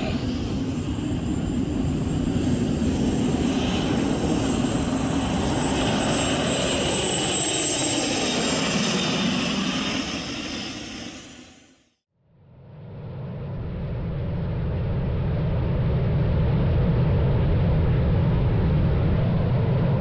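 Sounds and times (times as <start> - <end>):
helicopter engines roaring: 0.0 - 11.7
high turbine whine: 0.0 - 11.8.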